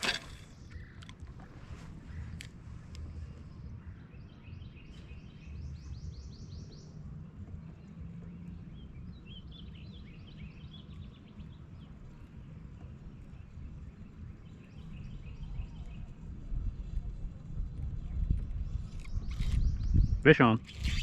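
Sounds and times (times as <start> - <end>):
low background rumble: 0.0 - 21.0
songbirds chirping: 0.0 - 21.0.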